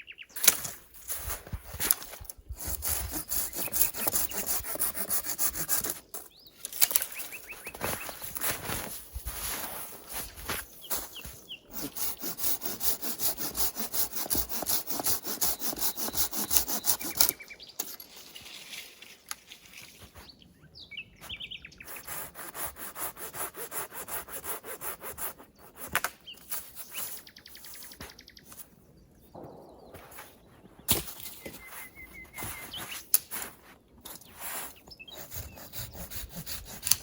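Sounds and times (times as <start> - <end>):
hand saw cutting wood: 1.8 - 8.8, 10.9 - 18.1, 21.8 - 26.9, 35.0 - 37.0.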